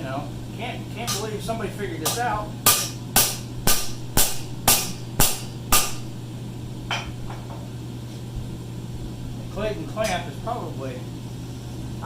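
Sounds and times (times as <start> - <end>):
steady low hum: 0.0 - 12.0
hammer striking steel anvil: 1.1 - 1.3, 2.0 - 6.1.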